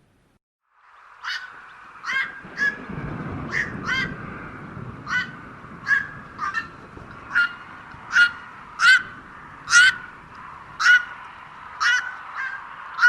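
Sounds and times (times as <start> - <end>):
heron squawking: 1.2 - 2.8, 3.5 - 4.1, 5.1 - 10.1, 10.8 - 11.2, 11.8 - 13.0.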